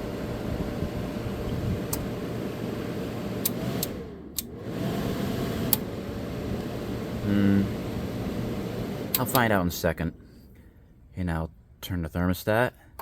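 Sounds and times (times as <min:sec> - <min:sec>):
air conditioner fan running: 0:00.0 - 0:12.1
sharp clicks: 0:09.1 - 0:09.6.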